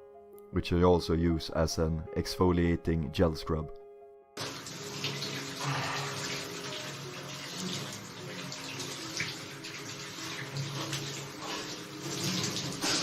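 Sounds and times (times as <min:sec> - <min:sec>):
water running and splashing: 0:04.4 - 0:13.0.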